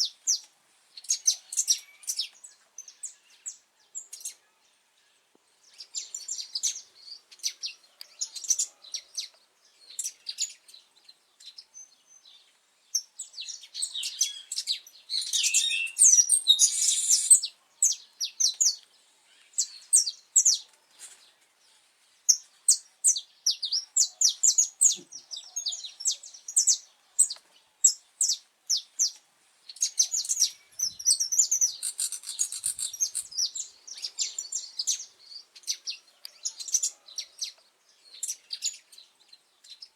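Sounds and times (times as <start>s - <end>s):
finch singing chirps and trills: 11.4s - 18.8s, 22.3s - 39.9s.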